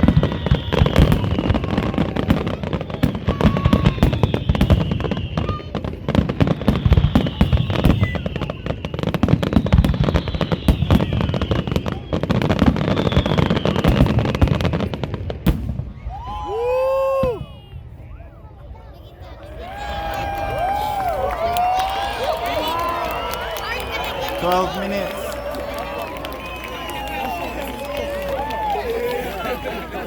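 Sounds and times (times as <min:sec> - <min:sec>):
high falling whistles: 0:00.0 - 0:01.9, 0:03.9 - 0:05.7, 0:06.4 - 0:14.8
fireworks bangs and crackles: 0:00.0 - 0:30.0.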